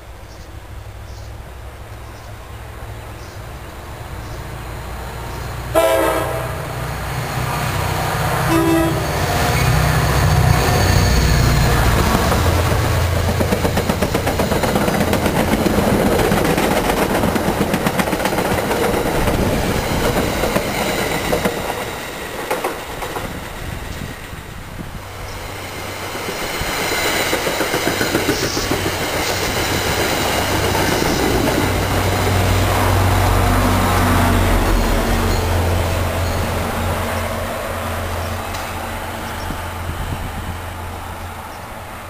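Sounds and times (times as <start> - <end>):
diesel locomotive hum: 0.0 - 42.0
train wheels clicking over rail joints: 9.2 - 24.5, 25.2 - 33.0.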